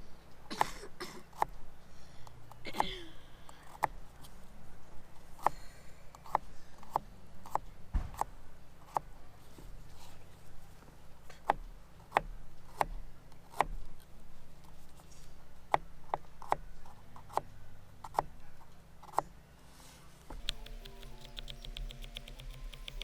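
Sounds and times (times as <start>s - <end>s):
fast even ticking: 20.3s - 23.0s
held tones: 20.3s - 23.0s.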